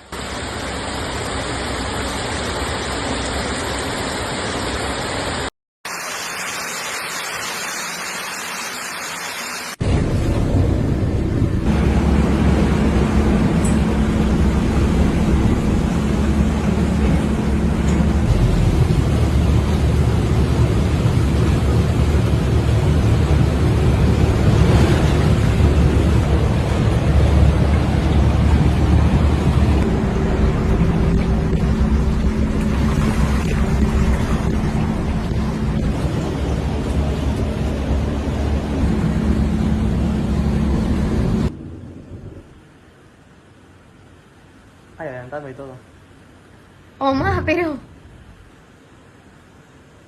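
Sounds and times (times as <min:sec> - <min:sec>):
floodwater rushing: 0:00.0 - 0:50.0
heavy rain: 0:00.0 - 0:50.0
low rumble: 0:09.8 - 0:43.2.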